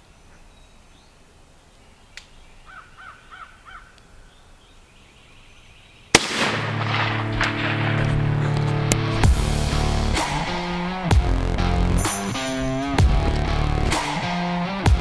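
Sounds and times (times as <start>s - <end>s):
crow cawing: 2.7s - 4.0s
shotgun shot: 6.1s - 11.2s
music: 6.6s - 15.0s.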